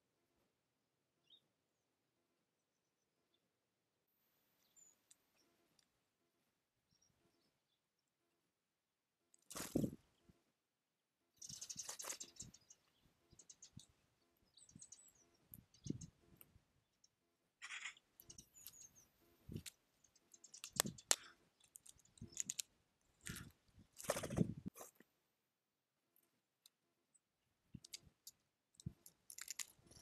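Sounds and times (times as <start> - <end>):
high bird chirps: 11.4 - 16.2
birds pecking clicks: 17.6 - 24.4, 27.8 - 30.0.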